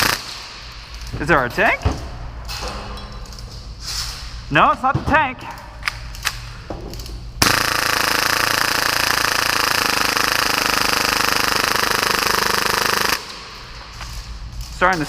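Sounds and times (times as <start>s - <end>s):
airsoft pistol rapid firing: 0.0s - 0.5s, 7.4s - 13.4s.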